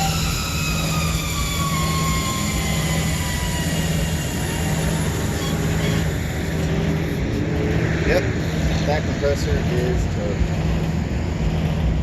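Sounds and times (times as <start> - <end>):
faint whining tones: 0.0 - 12.0
refrigeration unit humming: 0.0 - 12.0.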